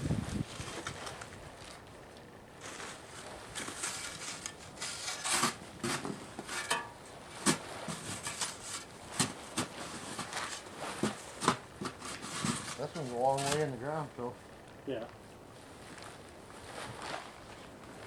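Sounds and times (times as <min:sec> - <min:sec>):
rustling: 0:02.6 - 0:13.8, 0:15.6 - 0:18.0.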